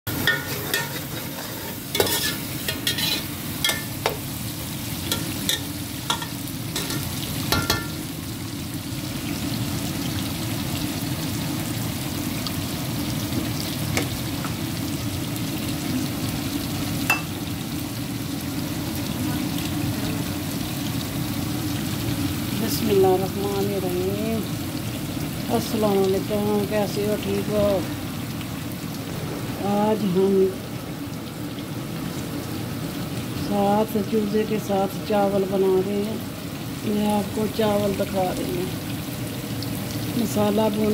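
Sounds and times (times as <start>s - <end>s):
masala frying in oil: 0.1s - 40.9s
metal spoon scraping pot: 0.2s - 3.8s.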